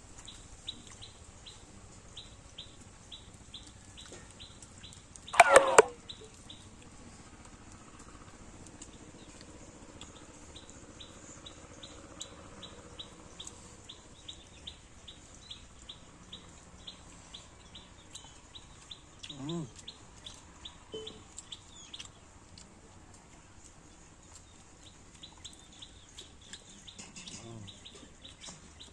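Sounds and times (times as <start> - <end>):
small bird high chirp: 18.1 - 22.2.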